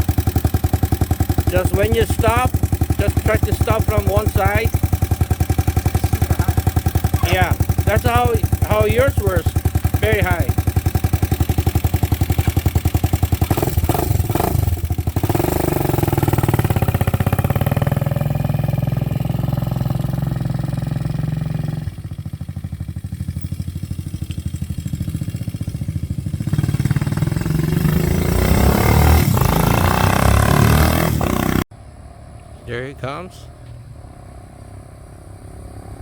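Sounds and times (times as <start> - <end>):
motorcycle engine riding by: 0.0 - 32.3.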